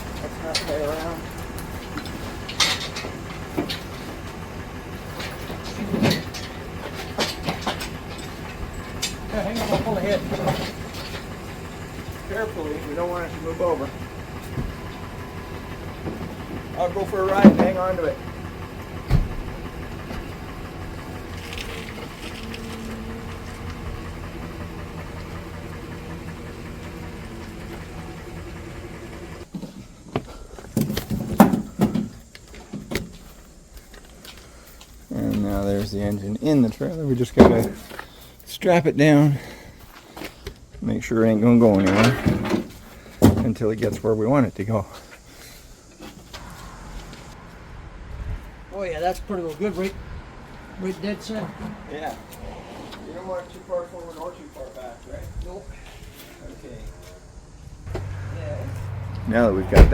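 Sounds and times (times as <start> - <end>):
clunks and knocks: 0.0 - 12.4, 13.0 - 28.5, 29.2 - 33.4, 37.2 - 38.1, 41.7 - 44.1
engine hoist chain clanking: 0.0 - 29.5, 30.6 - 47.5
low rumble: 46.4 - 48.8.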